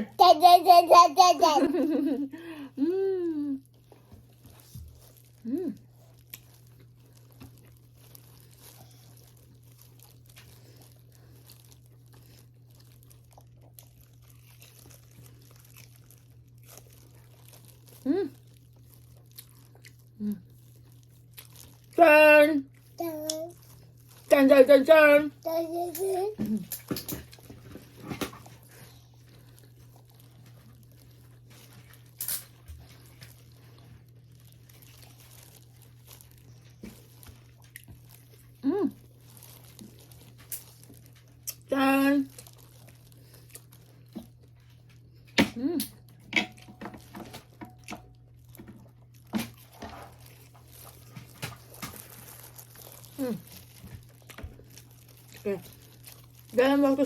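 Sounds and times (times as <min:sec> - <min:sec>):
chewing: 0:03.6 - 0:22.0, 0:26.6 - 0:41.7, 0:42.3 - 0:45.3, 0:47.1 - 0:56.6
paper wrapper crinkling: 0:04.3 - 0:22.0, 0:25.4 - 0:45.1, 0:47.0 - 0:57.0
small clicks and crunches: 0:25.4 - 0:38.6, 0:39.2 - 0:57.0.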